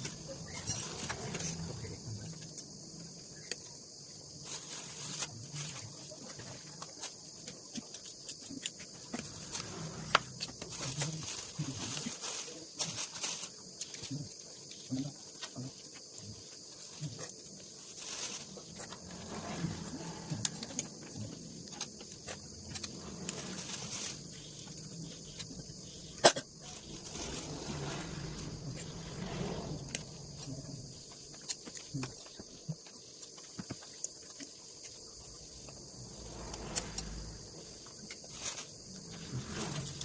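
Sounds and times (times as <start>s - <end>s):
steady high hiss: 16.8s - 32.4s.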